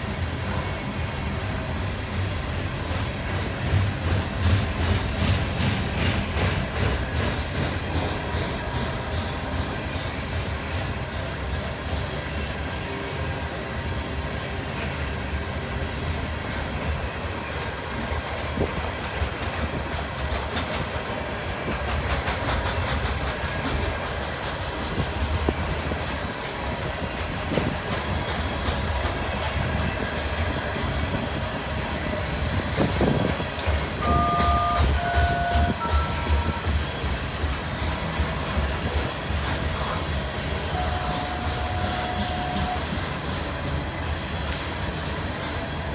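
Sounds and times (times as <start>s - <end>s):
train cars rumbling: 0.0s - 45.9s
wheels clicking over rail joints: 16.0s - 45.9s.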